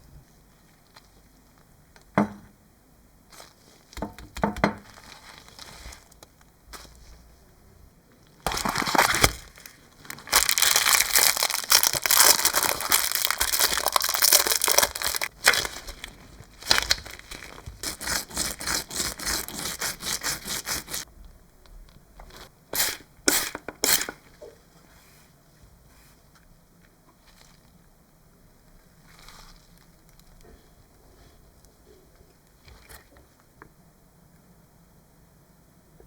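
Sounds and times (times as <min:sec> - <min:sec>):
rough scraping strokes: 0:17.8 - 0:21.0.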